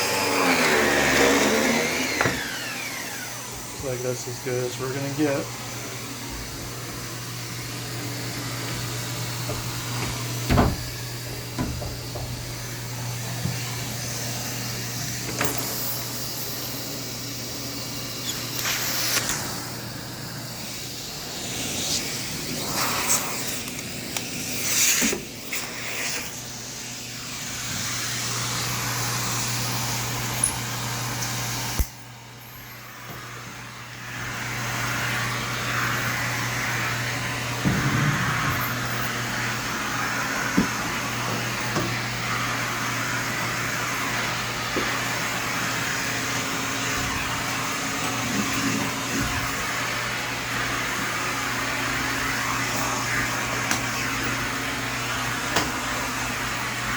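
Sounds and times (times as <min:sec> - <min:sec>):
vacuum suction drone: 0:00.0 - 0:56.9
cleaning tool knocking: 0:08.4 - 0:12.8, 0:37.6 - 0:38.8, 0:40.4 - 0:42.0.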